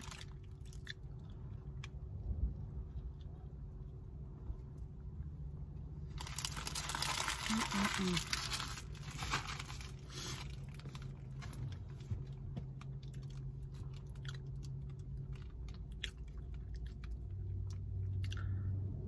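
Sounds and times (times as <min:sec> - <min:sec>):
person chewing sandwich: 0:00.0 - 0:04.4, 0:06.2 - 0:18.8.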